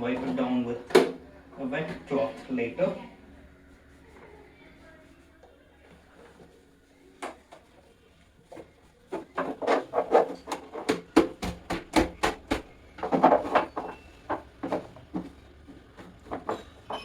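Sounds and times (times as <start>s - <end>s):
rubbing and knocking on fan housing: 8.4s - 17.0s.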